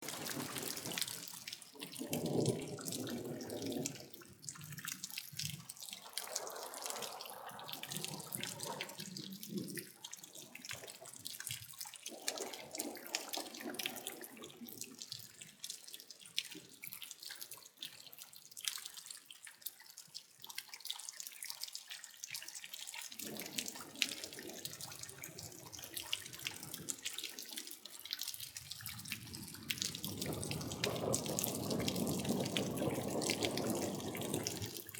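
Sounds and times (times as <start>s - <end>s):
water splashing rush: 0.0s - 4.1s, 29.1s - 34.9s
water dripping: 0.0s - 34.9s.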